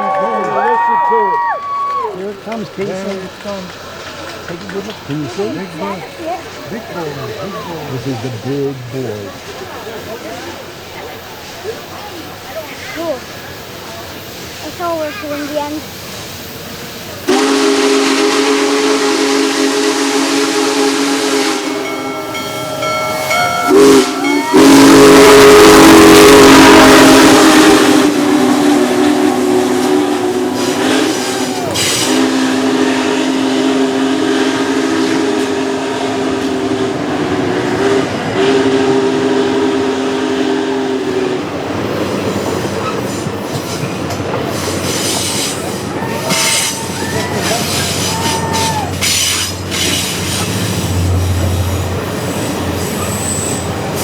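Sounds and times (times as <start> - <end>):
rush of steam: 0.0 - 54.0
train cars clattering: 0.0 - 54.0
steam whistle blasts: 17.3 - 41.4, 44.5 - 54.0
wheel squeal: 44.5 - 54.0.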